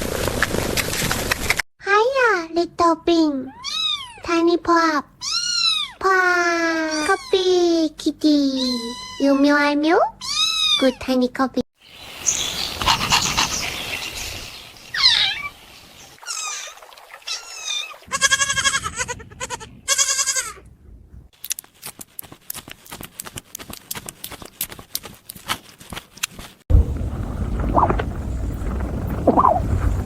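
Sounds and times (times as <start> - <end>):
young animal crying: 3.5 - 4.3, 5.2 - 6.0, 6.7 - 7.5, 8.6 - 9.5, 10.2 - 11.0, 16.2 - 20.6.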